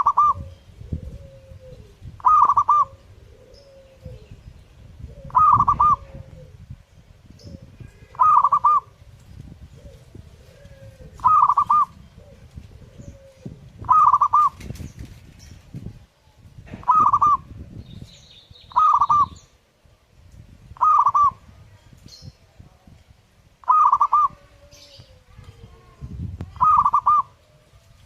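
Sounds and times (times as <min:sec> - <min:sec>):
dove cooing: 0:00.0 - 0:06.8, 0:07.4 - 0:14.8, 0:16.7 - 0:17.6, 0:18.7 - 0:19.5, 0:20.8 - 0:21.5, 0:23.6 - 0:25.5, 0:26.5 - 0:27.8.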